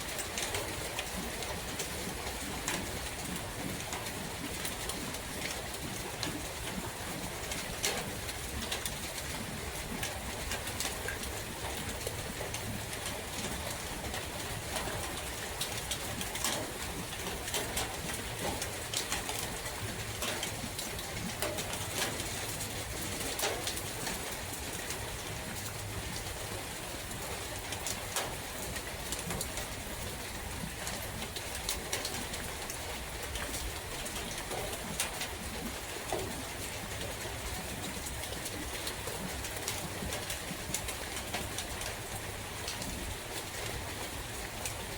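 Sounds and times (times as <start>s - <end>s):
raindrops ticking close by: 0.0s - 44.9s
steady rain in a forest: 0.0s - 44.9s.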